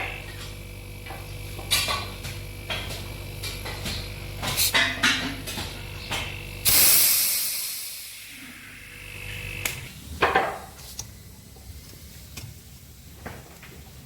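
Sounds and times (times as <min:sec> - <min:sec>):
pressurised gas hissing: 0:06.6 - 0:10.0.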